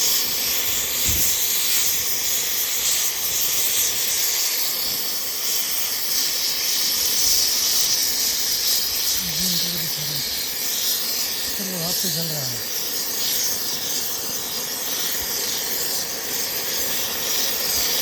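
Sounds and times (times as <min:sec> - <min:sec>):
gas cutting torch hissing: 0:00.0 - 0:18.0.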